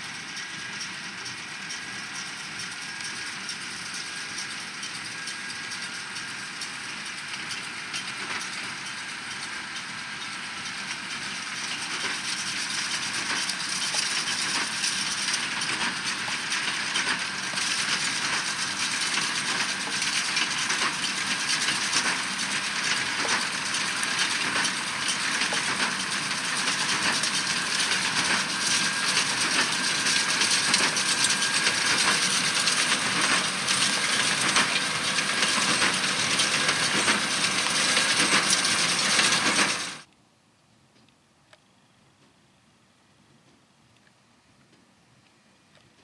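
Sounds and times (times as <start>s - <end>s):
baler clatter and rattle: 12.3s - 40.0s.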